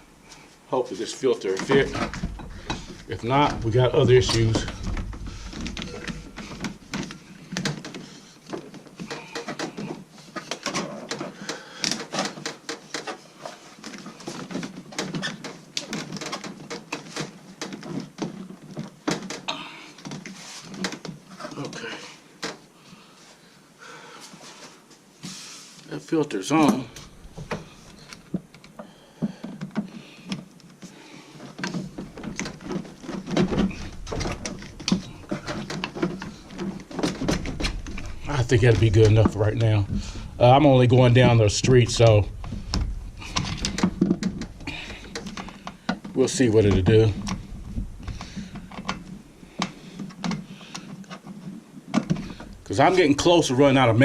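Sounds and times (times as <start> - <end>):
low rumble: 1.9 - 6.9, 37.2 - 45.2, 46.7 - 48.3
parts clicking and scraping: 26.6 - 53.1.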